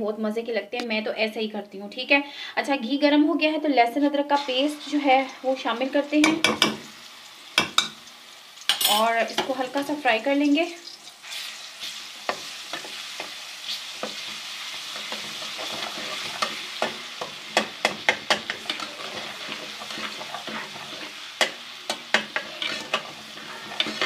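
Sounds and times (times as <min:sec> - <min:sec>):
paste sizzling in hot fat: 0:04.3 - 0:24.0
spoon clicking and scraping pan: 0:06.2 - 0:06.8, 0:12.3 - 0:24.0.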